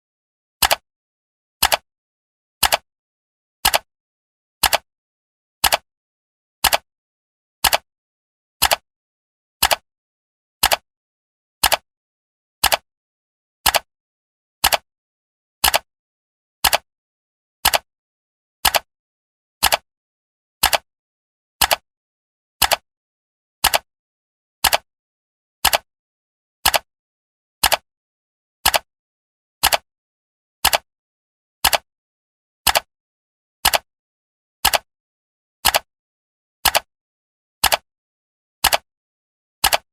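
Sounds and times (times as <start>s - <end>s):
clock ticking: 20.6s - 20.8s, 25.6s - 25.8s, 29.6s - 29.8s, 38.6s - 38.8s, 39.6s - 39.9s.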